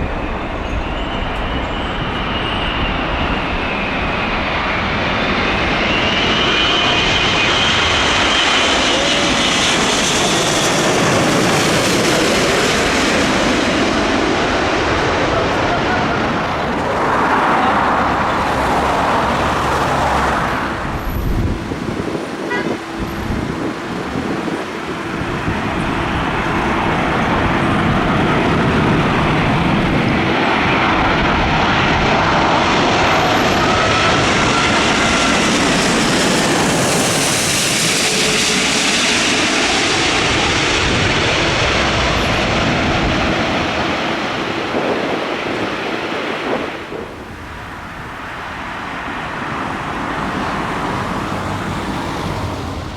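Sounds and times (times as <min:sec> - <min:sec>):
jet airliner engines rushing: 0:00.0 - 0:52.9.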